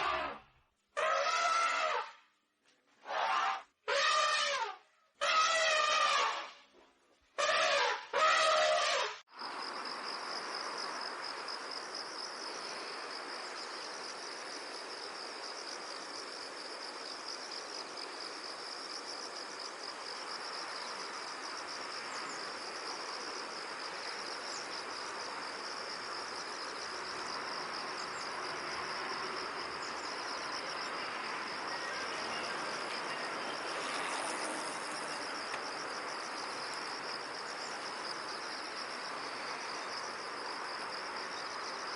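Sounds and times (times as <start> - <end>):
cricket trilling: 9.3 - 41.9.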